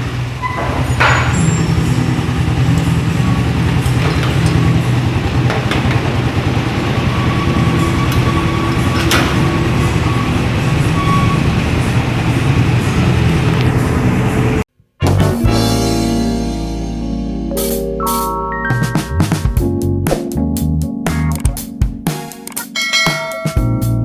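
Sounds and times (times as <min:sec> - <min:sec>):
motorcycle engine idling: 0:00.0 - 0:14.6.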